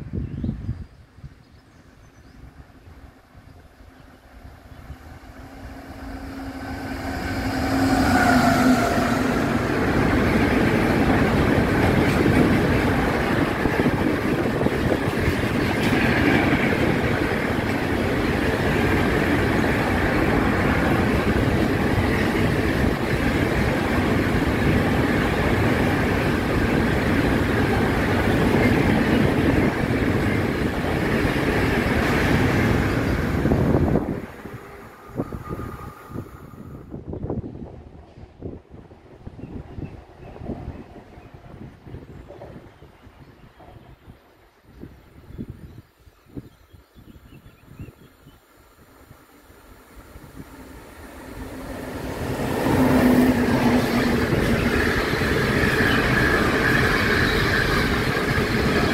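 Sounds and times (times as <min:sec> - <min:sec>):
train wheels rumbling and clattering: 0:05.2 - 0:36.0, 0:50.3 - 0:58.9.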